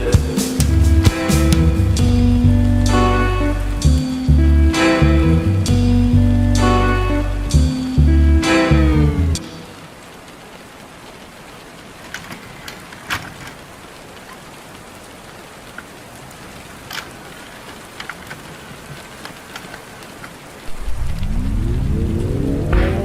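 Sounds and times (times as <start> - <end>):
raindrops tapping close by: 0.0 - 3.0, 9.4 - 23.0
rain falling: 0.0 - 23.0.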